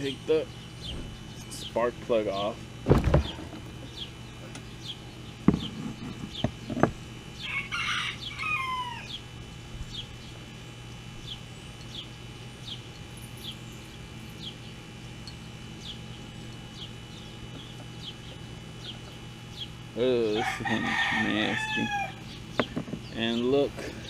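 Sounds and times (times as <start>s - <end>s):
sharp knocks: 2.8s - 3.8s, 5.4s - 5.7s
rooster crowing: 7.4s - 9.2s, 20.3s - 22.3s.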